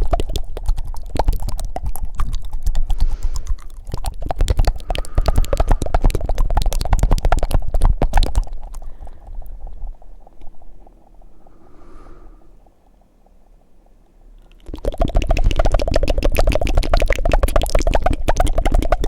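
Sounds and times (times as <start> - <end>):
wet tongue flutters: 0.0 - 13.1, 14.4 - 19.0
mouth clicks: 0.0 - 19.0
soft breath: 2.7 - 6.9, 8.7 - 14.0.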